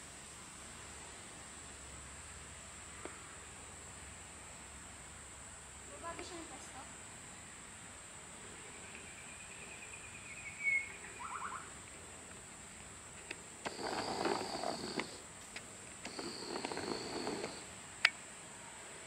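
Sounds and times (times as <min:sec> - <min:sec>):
insect drone: 0:00.0 - 0:19.0
birds calling: 0:08.9 - 0:11.8, 0:13.6 - 0:15.2, 0:16.0 - 0:17.7
bird harsh calls: 0:10.3 - 0:11.7.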